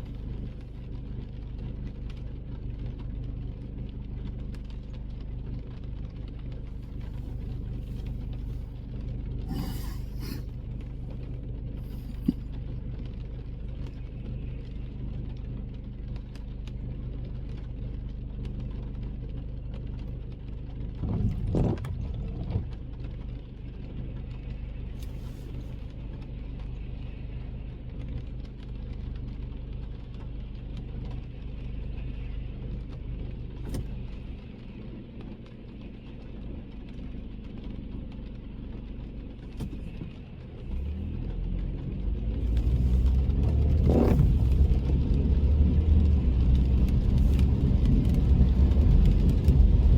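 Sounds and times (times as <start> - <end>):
car engine and road rumble: 0.0 - 49.9
tyre noise on wet road: 0.0 - 49.9.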